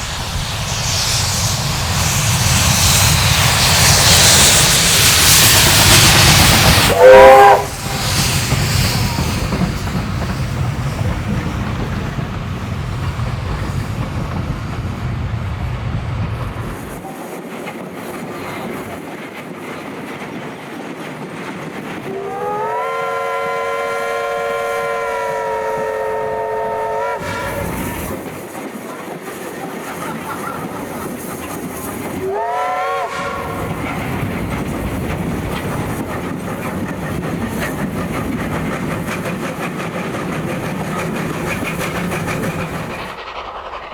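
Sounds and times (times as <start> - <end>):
steam train rolling: 0.0 - 43.9
steam whistle blast: 6.8 - 9.4, 22.1 - 28.3, 32.2 - 34.0.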